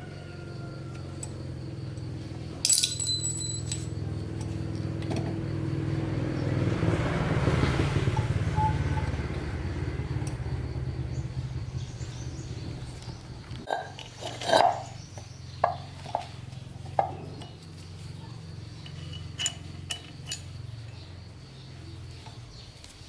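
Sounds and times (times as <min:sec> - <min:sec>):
metal clinking and jangling: 0:02.0 - 0:04.9, 0:18.8 - 0:21.1.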